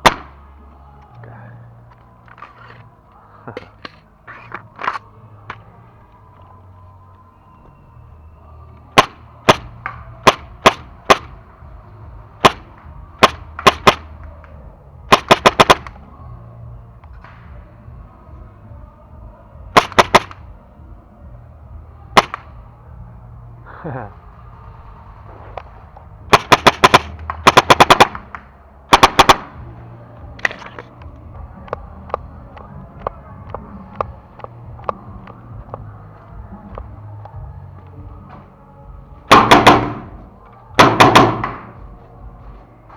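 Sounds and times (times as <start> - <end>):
paintball marker shots: 0.0 - 0.4, 9.0 - 11.4, 12.4 - 14.5, 15.1 - 16.0, 19.8 - 20.5, 22.2 - 22.6, 26.3 - 30.9, 39.3 - 40.2, 40.8 - 41.8.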